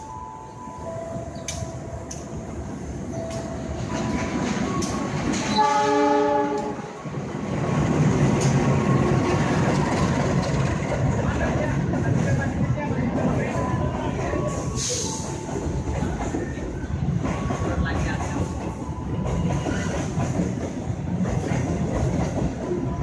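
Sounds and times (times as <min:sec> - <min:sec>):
locomotive and wagons rumbling: 0:00.9 - 0:23.0
train horn blast: 0:05.5 - 0:07.0.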